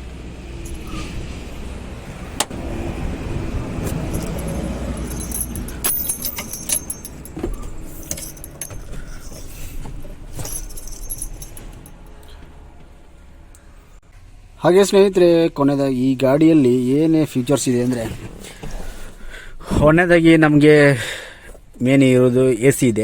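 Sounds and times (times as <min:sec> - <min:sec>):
keys jangling: 0:00.6 - 0:01.0, 0:03.7 - 0:12.1.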